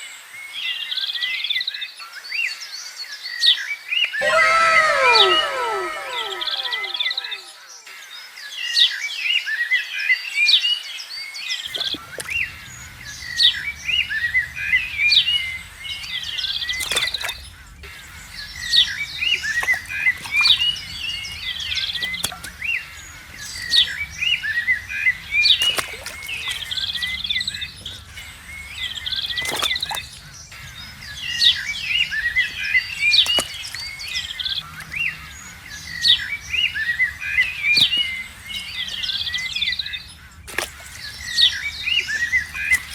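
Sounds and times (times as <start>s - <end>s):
small birds chirping and trilling: 11.7s - 42.9s.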